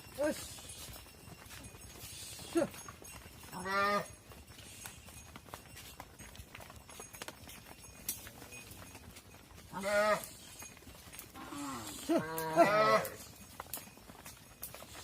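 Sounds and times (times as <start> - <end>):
calves bawling: 9.6 - 13.5.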